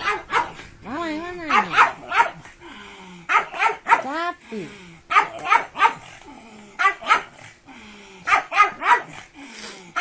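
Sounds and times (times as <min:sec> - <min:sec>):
dog barking: 0:00.0 - 0:00.6, 0:01.5 - 0:02.5, 0:03.3 - 0:04.1, 0:05.1 - 0:06.1, 0:06.8 - 0:07.4, 0:08.3 - 0:09.2.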